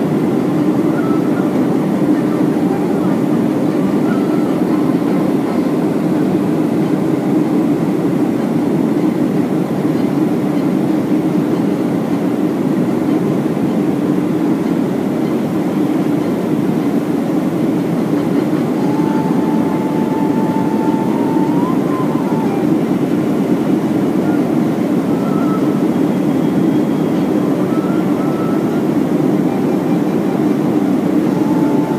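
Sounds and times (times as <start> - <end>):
airplane cabin rumble: 0.0 - 31.9
faint high tone: 18.8 - 22.8, 25.0 - 31.9.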